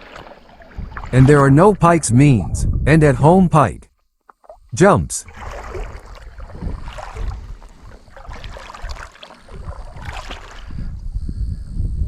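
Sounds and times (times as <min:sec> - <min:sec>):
water splashing around boat: 0:00.0 - 0:02.6, 0:04.3 - 0:10.9
wind on microphone: 0:00.0 - 0:03.8, 0:05.2 - 0:12.0.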